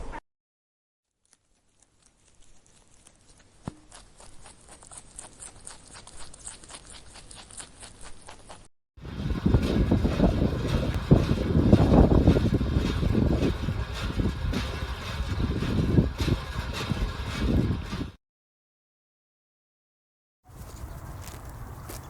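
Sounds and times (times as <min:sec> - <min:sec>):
loud wind rumble: 0:09.0 - 0:18.2
footsteps on hard surface: 0:20.5 - 0:22.0.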